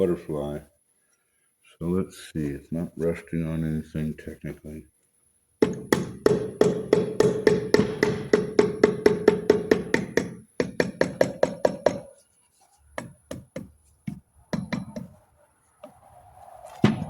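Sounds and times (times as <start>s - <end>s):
air impact wrench hammering: 5.6s - 12.1s, 13.0s - 15.2s.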